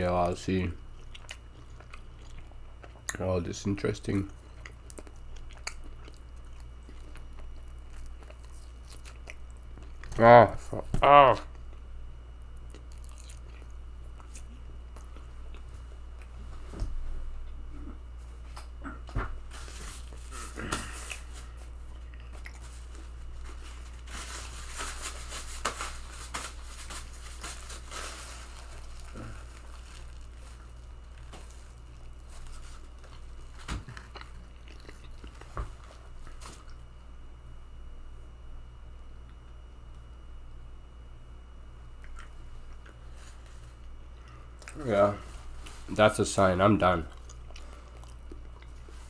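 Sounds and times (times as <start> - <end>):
quiet chewing: 0.8 - 3.4, 4.1 - 10.2, 11.4 - 16.5, 17.4 - 24.1, 27.1 - 36.9, 41.9 - 45.9, 46.8 - 49.0.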